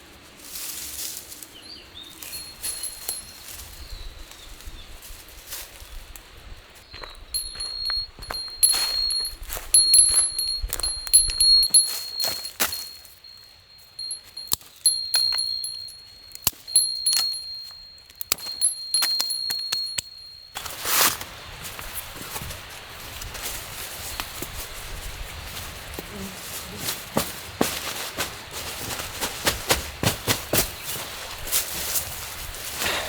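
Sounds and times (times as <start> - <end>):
small metal bell jingling: 1.6 - 4.2, 7.0 - 20.8.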